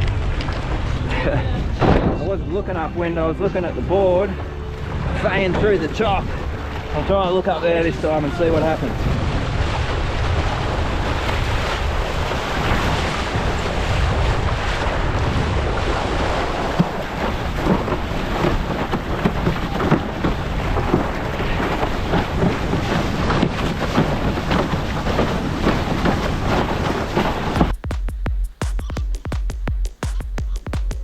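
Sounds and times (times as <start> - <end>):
wind buffeting microphone: 0.0 - 27.9
water rushing under board: 0.0 - 31.0
hull slapping on chop: 8.6 - 31.0.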